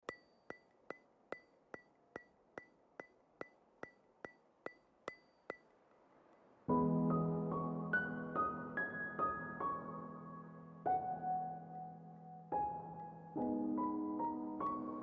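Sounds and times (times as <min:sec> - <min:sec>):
ringing ticks: 0:00.0 - 0:06.4.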